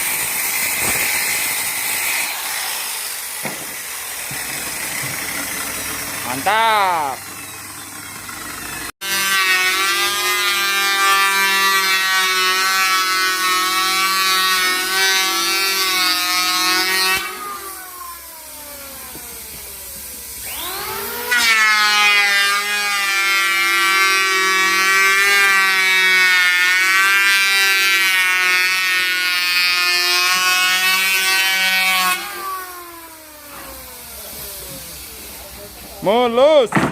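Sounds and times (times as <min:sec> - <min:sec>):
power tool motor whine: 0:00.0 - 0:11.6, 0:17.2 - 0:21.4.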